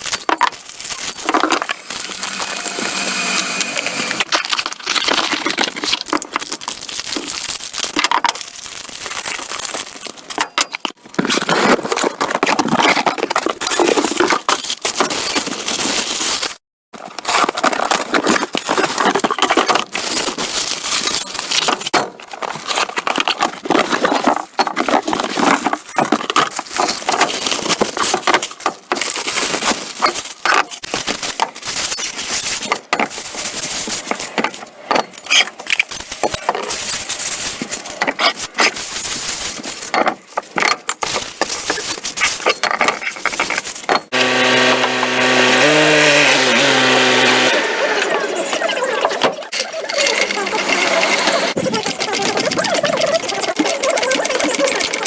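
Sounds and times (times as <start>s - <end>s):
tools and parts clinking: 0.0s - 3.0s, 23.8s - 44.2s.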